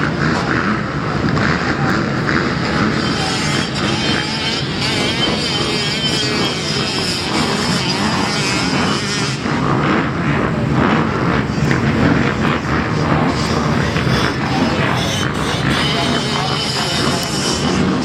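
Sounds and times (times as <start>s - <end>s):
two-stroke motocross bikes racing: 0.0s - 18.0s.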